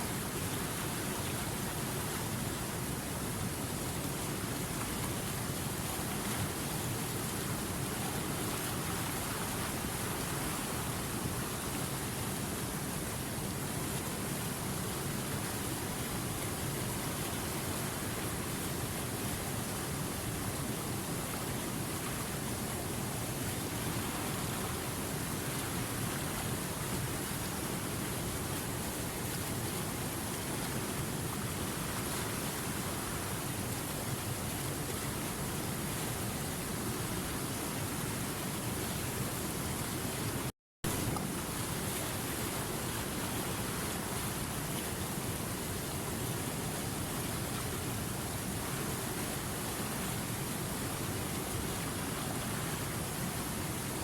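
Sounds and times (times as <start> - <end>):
river water rushing over rapids: 0.0 - 54.0.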